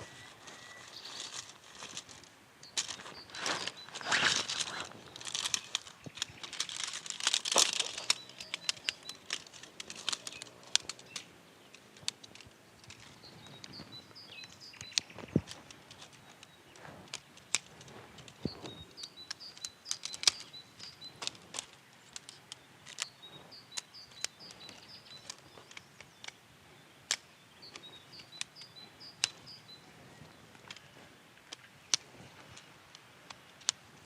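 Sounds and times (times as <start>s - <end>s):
crinkling and rustling: 0.0s - 26.4s, 27.1s - 34.0s
sharp clicks: 1.2s - 26.4s.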